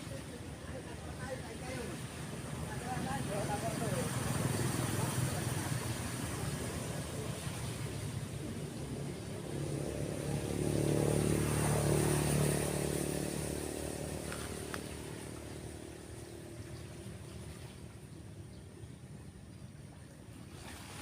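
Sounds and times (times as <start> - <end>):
waves breaking on beach: 0.0 - 18.3, 20.2 - 21.0
motorcycle passing by: 2.6 - 18.0.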